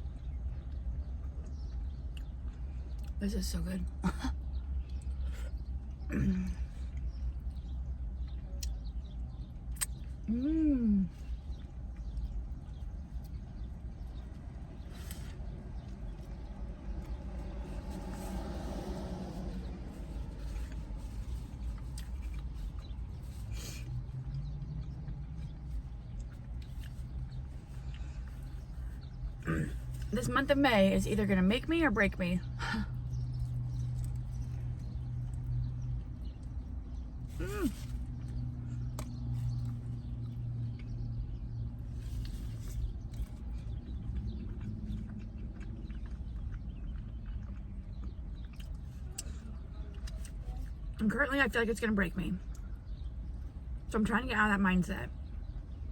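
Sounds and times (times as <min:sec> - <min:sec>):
low rumble: 0:03.9 - 0:51.1
chewing and mouth noises: 0:11.1 - 0:30.2, 0:32.4 - 0:51.0.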